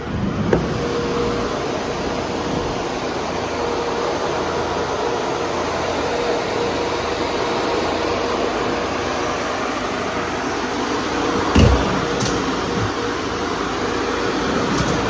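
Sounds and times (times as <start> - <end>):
constant hum: 11.2 - 13.2
machine whirring: 11.3 - 13.1
sharp thump: 11.5 - 12.9.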